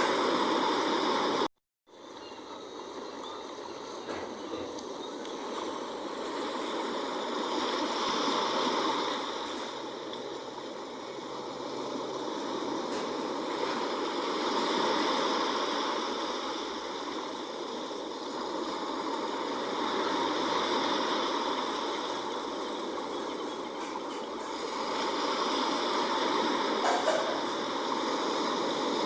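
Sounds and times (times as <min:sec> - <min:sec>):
sea waves washing in: 0:00.0 - 0:29.0.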